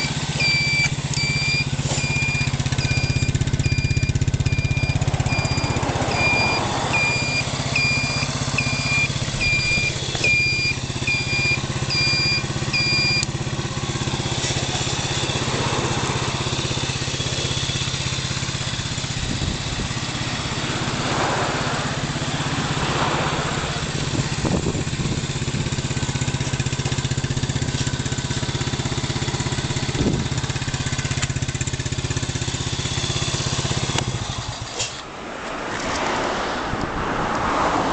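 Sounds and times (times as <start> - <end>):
high electronic beeps: 0.0 - 13.3
quad buggy engine idling: 0.0 - 35.1.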